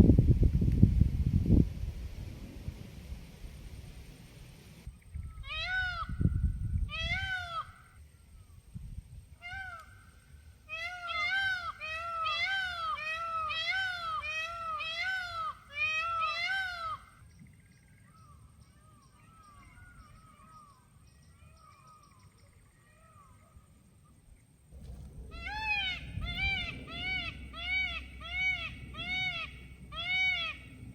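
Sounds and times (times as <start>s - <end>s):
low rumble: 24.7s - 30.9s.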